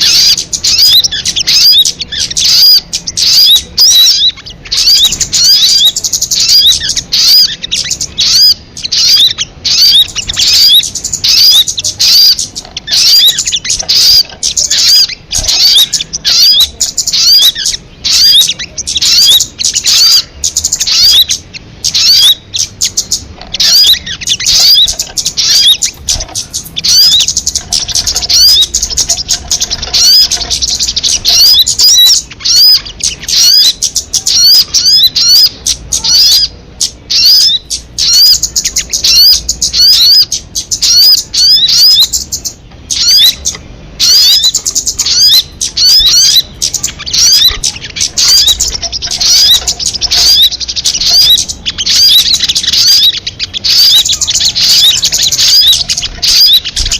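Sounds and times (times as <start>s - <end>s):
sunbird chirping: 0.0s - 56.9s.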